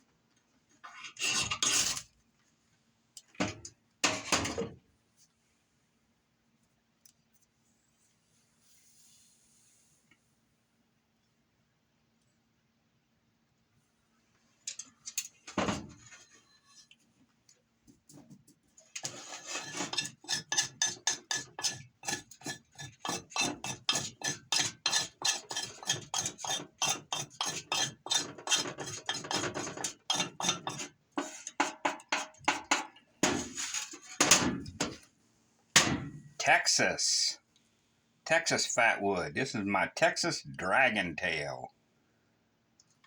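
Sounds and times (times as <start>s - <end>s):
knife scraping wood: 19.0s - 32.7s.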